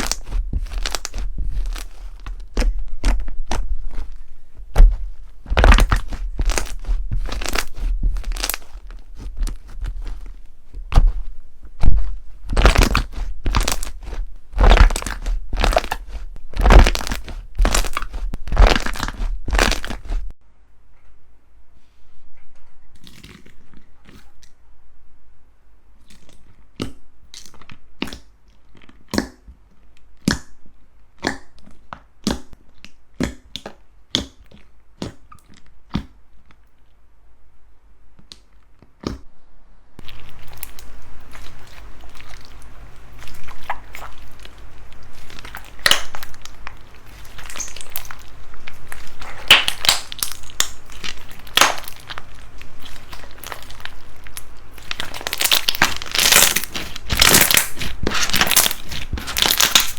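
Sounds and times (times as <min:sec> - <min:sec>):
slime crunchy pops: 0:00.0 - 0:04.1, 0:04.7 - 0:20.3, 0:29.1 - 0:29.4, 0:31.2 - 0:31.6, 0:40.0 - 0:59.9
slime crackling and crinkling: 0:00.0 - 0:20.4, 0:23.0 - 0:24.4, 0:26.0 - 0:29.4, 0:40.0 - 0:59.9.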